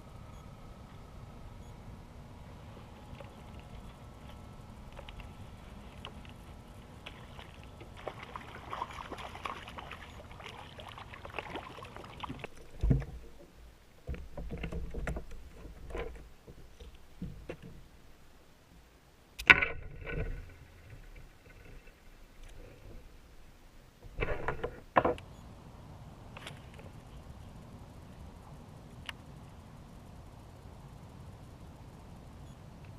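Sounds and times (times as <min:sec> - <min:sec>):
water movement: 0:02.9 - 0:18.2.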